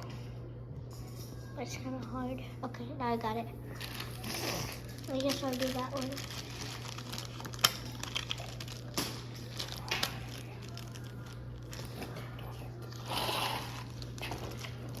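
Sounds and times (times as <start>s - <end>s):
plastic rustle: 3.8s - 13.0s.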